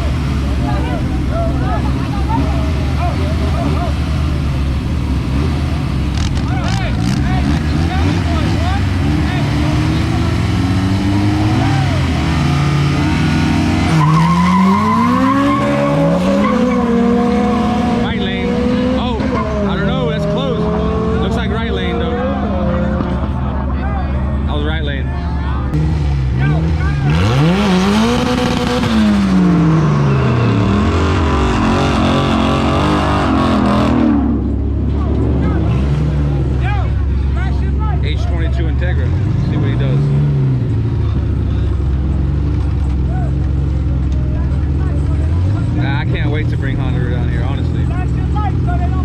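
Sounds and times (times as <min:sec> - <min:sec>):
car engine revving: 0:00.0 - 0:49.0.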